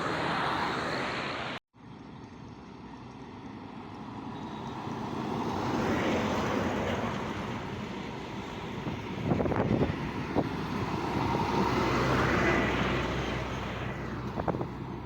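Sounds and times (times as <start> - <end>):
truck driving past: 0.0 - 15.0.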